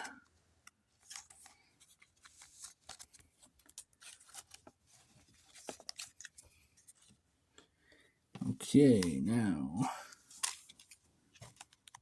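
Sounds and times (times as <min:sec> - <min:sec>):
cards and wrappers rustling: 0:00.8 - 0:07.2, 0:10.1 - 0:12.0.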